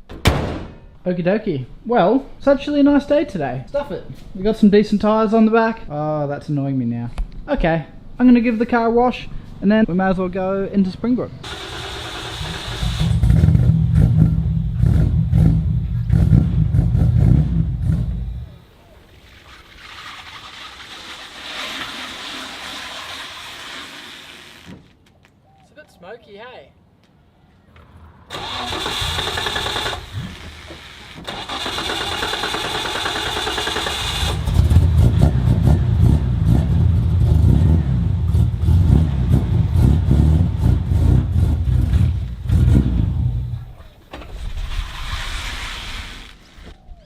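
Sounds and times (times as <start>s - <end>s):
engine starter whirring: 11.4s - 14.3s, 28.3s - 35.0s
engine deep low rumble: 13.0s - 19.0s, 34.4s - 43.9s.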